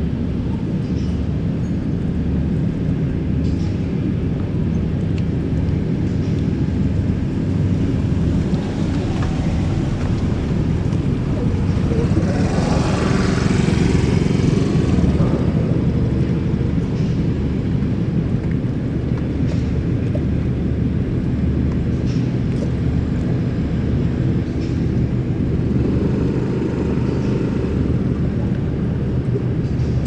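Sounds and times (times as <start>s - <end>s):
boat engine rumble: 0.0s - 30.0s
rushing noise: 6.5s - 18.3s.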